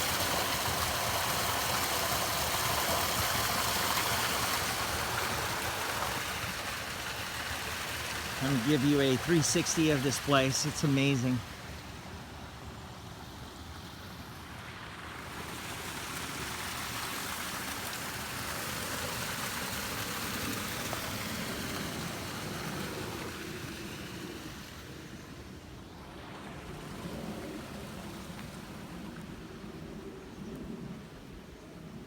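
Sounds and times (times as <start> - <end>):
water rushing from small waterfall: 0.0 - 25.2.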